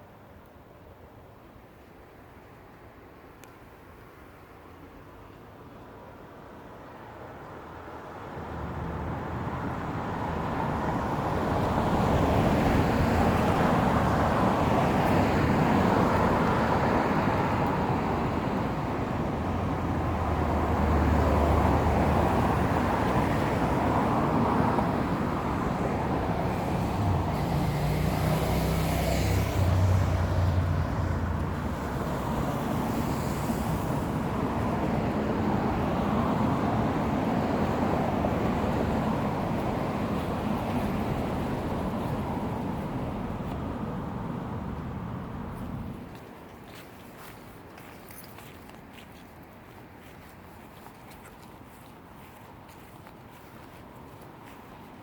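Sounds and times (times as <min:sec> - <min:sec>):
passing vehicles rushing: 0:08.2 - 0:46.6
low engine hum: 0:08.4 - 0:55.0.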